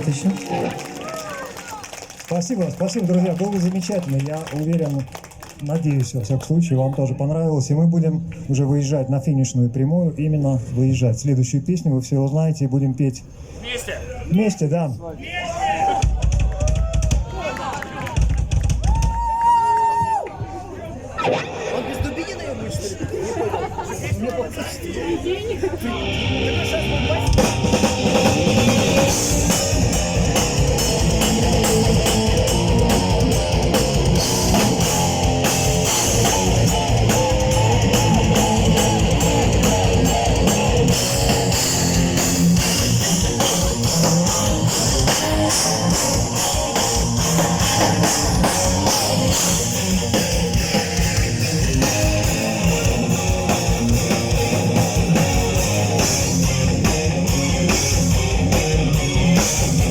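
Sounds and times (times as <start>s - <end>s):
drum kit: 16.0s - 17.3s, 18.1s - 19.5s, 27.0s - 59.9s
heavy metal guitars: 25.8s - 59.9s.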